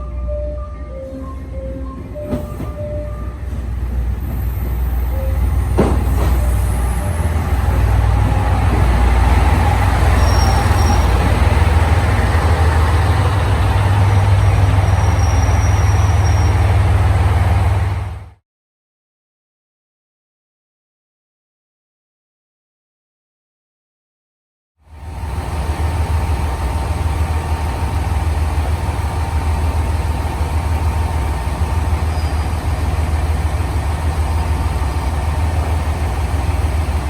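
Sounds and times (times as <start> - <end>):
train rumbling: 0.0 - 18.4, 24.9 - 37.0
train squeal: 1.0 - 11.9, 13.7 - 17.0, 31.0 - 35.4.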